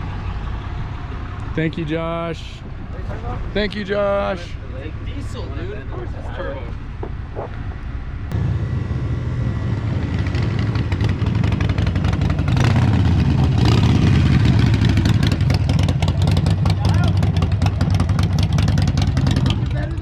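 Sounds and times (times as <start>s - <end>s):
vehicle engine running: 6.8s - 20.0s.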